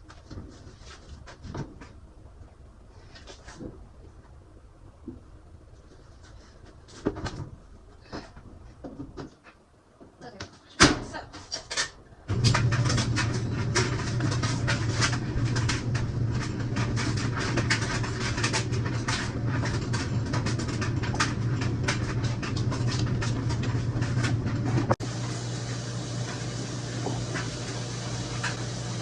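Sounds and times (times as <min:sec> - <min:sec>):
steady low hum: 0:12.0 - 0:29.0
rapid clicks and knocks: 0:12.3 - 0:25.0.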